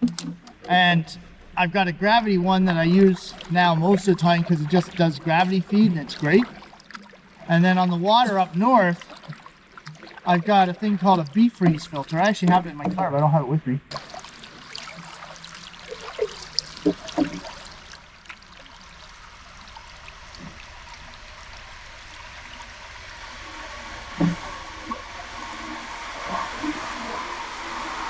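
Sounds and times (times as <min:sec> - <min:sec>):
water trickling around paddle: 0:00.0 - 0:28.0.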